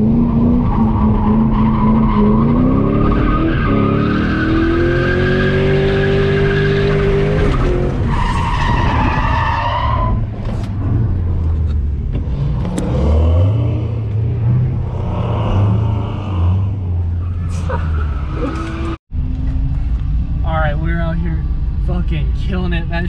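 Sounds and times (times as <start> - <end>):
car engine revving high: 0.0 - 8.1
tire squeal: 0.0 - 10.6, 15.0 - 19.0.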